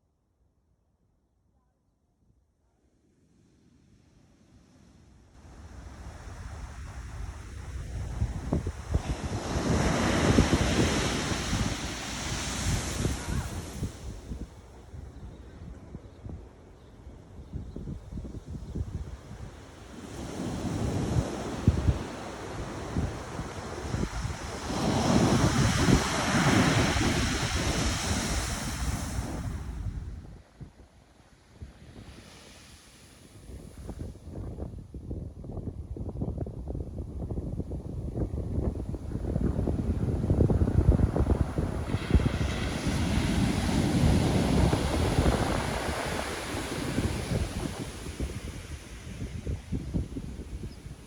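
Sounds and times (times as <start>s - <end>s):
wave breaking and washing up: 5.4s - 14.4s, 19.9s - 30.1s, 38.6s - 50.7s
wind buffeting microphone: 5.5s - 16.5s, 17.3s - 30.8s, 33.3s - 51.0s.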